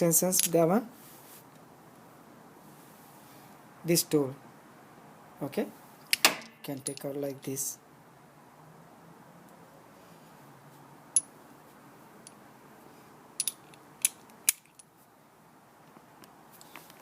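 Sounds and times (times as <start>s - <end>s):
hand tools clinking: 6.1s - 7.2s, 13.4s - 14.9s.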